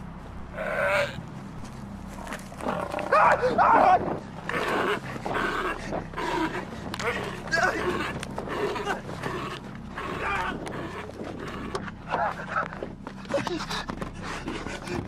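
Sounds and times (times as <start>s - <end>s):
loud cries: 2.9s - 12.7s.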